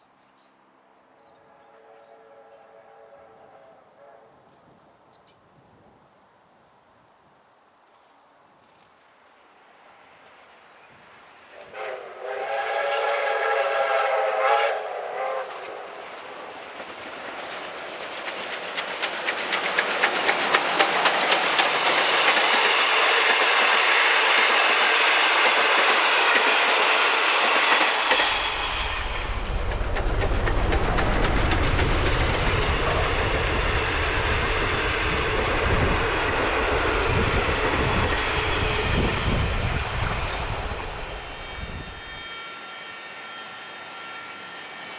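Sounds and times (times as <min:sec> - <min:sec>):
train whistle chord: 0:01.4 - 0:04.5, 0:11.5 - 0:15.9, 0:40.7 - 0:44.9
train wheels clattering: 0:15.4 - 0:39.3
heavy low rumble: 0:28.5 - 0:42.0.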